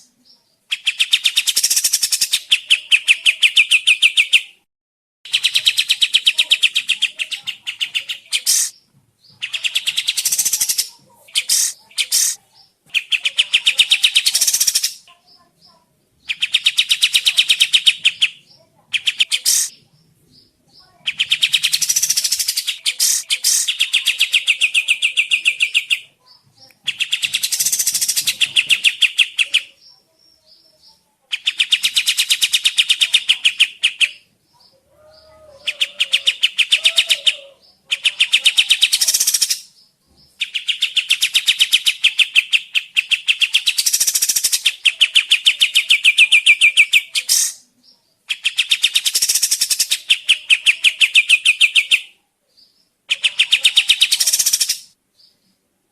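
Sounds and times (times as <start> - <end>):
bird rapid rattling song: 0.7 - 4.4, 5.3 - 15.0, 16.2 - 19.8, 21.0 - 26.0, 26.8 - 29.7, 31.3 - 34.3, 38.1 - 47.6, 48.3 - 52.1, 53.1 - 54.9.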